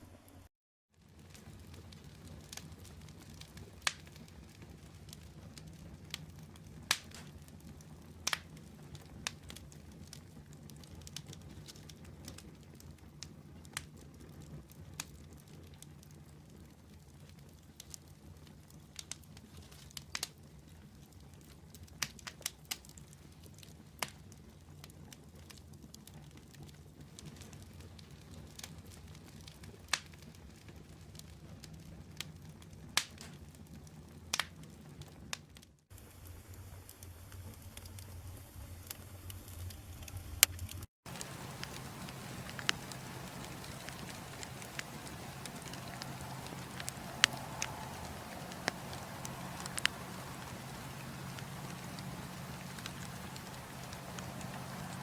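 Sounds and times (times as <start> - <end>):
low rumble of flames: 0.0 - 34.4, 36.0 - 55.0
logs popping and crackling: 1.2 - 16.2, 36.0 - 55.0.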